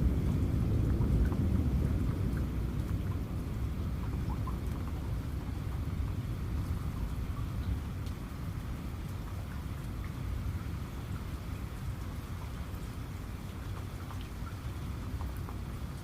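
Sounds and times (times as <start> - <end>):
low rumble: 0.0 - 7.0
raindrop ticks: 0.0 - 16.0
steady rain falling: 0.0 - 16.0.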